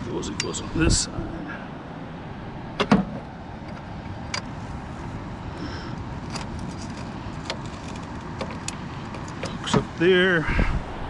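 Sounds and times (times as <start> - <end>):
low background rumble: 0.0 - 11.0
hardware knocking: 2.8 - 4.5, 6.3 - 9.9.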